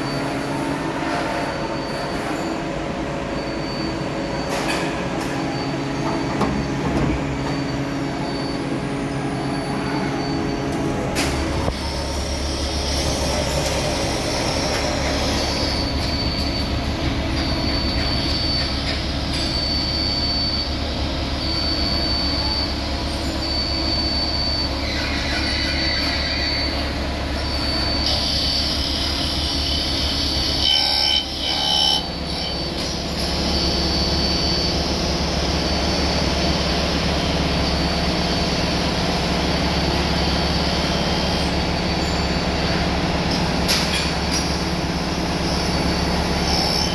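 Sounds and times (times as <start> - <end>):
machinery humming: 0.0 - 46.9
high-pitched squeal: 44.0 - 46.9.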